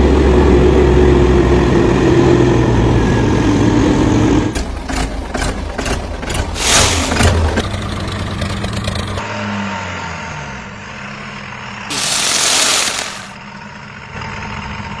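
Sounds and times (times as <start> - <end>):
loud hiss: 6.6 - 7.3, 11.9 - 13.4.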